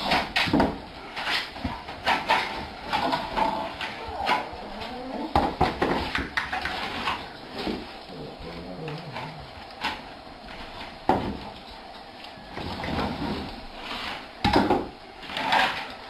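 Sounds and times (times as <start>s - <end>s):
dog vocalizing: 3.5s - 5.5s, 8.0s - 9.8s.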